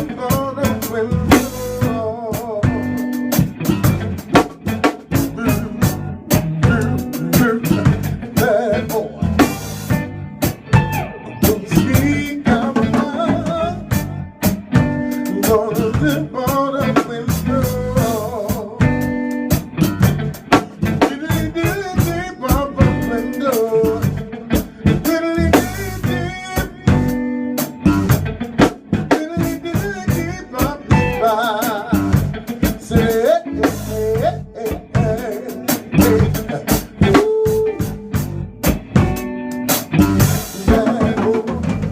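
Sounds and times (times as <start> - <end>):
person singing: 0.0 - 3.2, 5.2 - 9.6, 10.8 - 14.1, 15.1 - 19.3, 20.8 - 27.3, 29.1 - 38.4, 40.0 - 41.9
drum kit rimshots: 0.0 - 41.9
guitar: 0.0 - 41.9
live band playing: 0.0 - 41.9.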